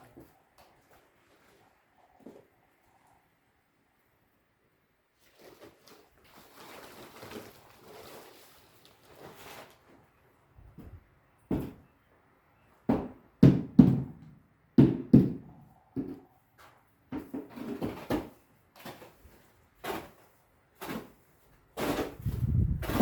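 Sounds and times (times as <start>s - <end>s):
irregular knocks and thuds: 10.7s - 11.8s.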